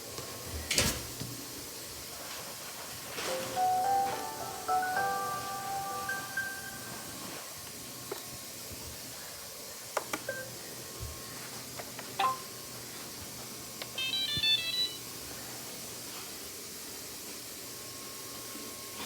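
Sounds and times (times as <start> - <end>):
faint steady hiss: 0.0 - 10.0
melodic jingle of beeps: 3.3 - 7.3.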